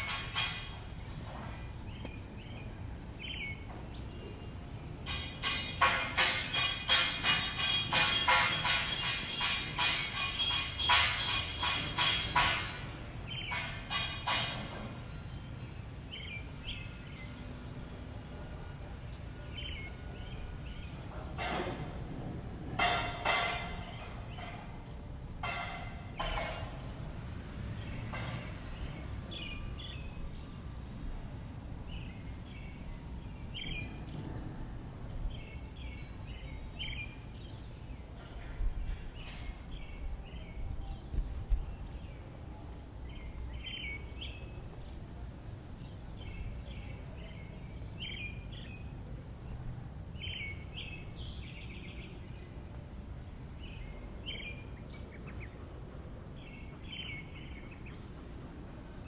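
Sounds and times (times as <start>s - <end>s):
bird chirping: 0.0s - 5.0s.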